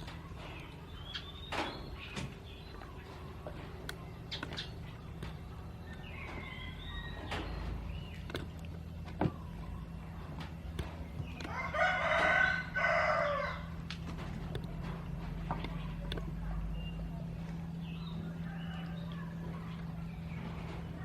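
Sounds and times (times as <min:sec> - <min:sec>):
steady low hum: 0:00.0 - 0:21.0
rooster crowing: 0:06.0 - 0:07.3, 0:11.5 - 0:13.7.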